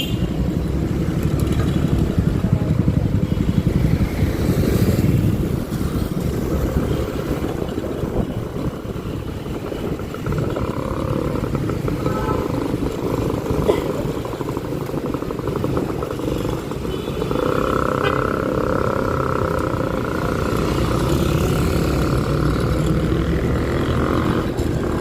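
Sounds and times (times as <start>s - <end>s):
road traffic: 0.0s - 25.0s
scooter engine running: 0.0s - 25.0s
wind buffeting microphone: 2.0s - 16.9s.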